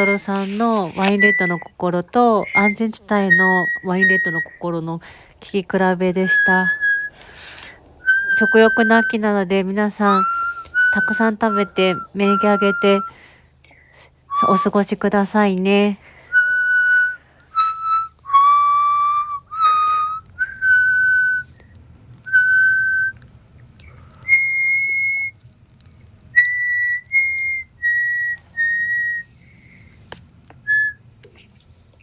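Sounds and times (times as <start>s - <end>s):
harmonica slow melody: 0.0s - 13.4s, 14.1s - 14.9s, 16.0s - 31.3s
faint clicks: 6.8s - 9.2s.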